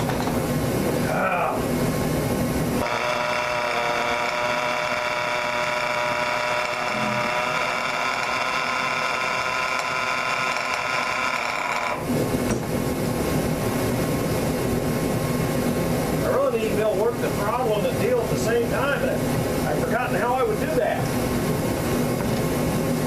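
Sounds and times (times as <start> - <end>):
small engine high-pitched whine: 2.8 - 12.1.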